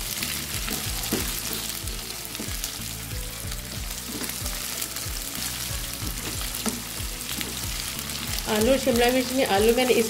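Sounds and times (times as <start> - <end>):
potatoes sizzling in hot oil: 0.0 - 10.0
wooden spatula scraping a pan: 3.6 - 4.8, 5.4 - 8.4.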